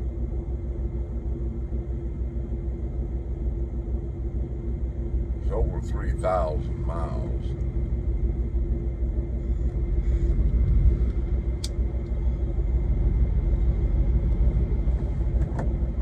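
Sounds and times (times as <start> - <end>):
constant hum: 0.0 - 16.0
diesel truck engine rumbling: 4.9 - 16.0.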